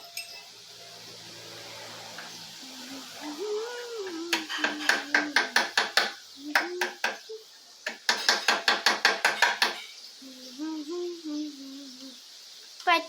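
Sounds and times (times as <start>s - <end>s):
person humming: 2.6s - 5.7s, 6.4s - 7.5s, 10.2s - 12.2s.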